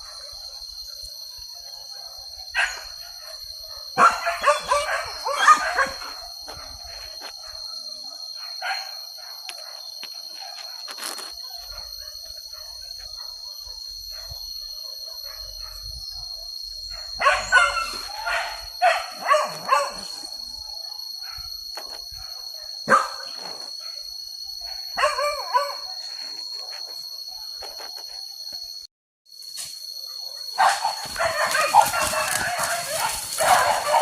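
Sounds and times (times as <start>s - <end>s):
dogs barking and yelping: 1.5s - 10.8s, 11.4s - 27.9s, 30.0s - 34.0s.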